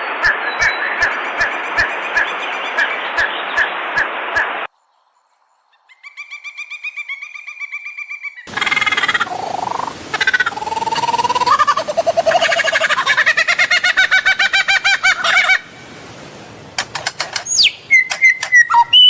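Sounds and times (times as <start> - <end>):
loud animal calls: 8.1 - 15.7
dense chorus of animal calls: 8.4 - 15.7.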